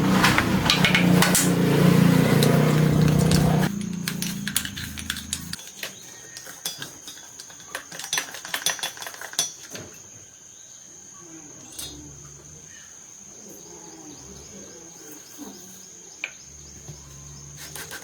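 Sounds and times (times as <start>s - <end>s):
metal parts and tools clinking: 0.0s - 9.9s.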